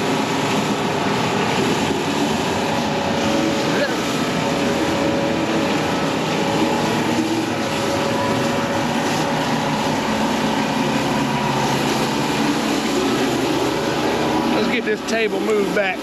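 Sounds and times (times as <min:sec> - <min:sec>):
pressure washer engine running: 0:00.0 - 0:16.0
water spray hissing on concrete: 0:00.0 - 0:16.0.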